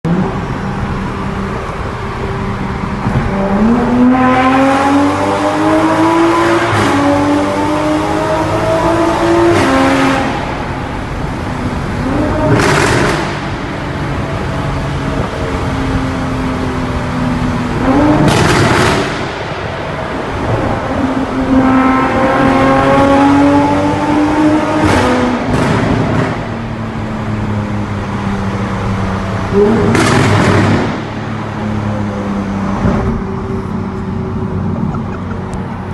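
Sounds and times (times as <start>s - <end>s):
car exhaust accelerating: 0.1s - 35.9s
exhaust cracks: 12.4s - 13.7s.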